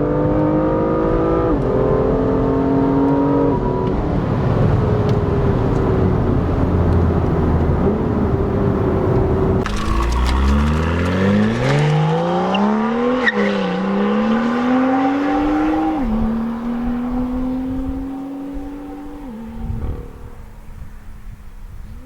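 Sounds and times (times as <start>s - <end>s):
car engine accelerating: 0.0s - 20.9s
gearshift exhaust crack: 3.8s - 13.0s.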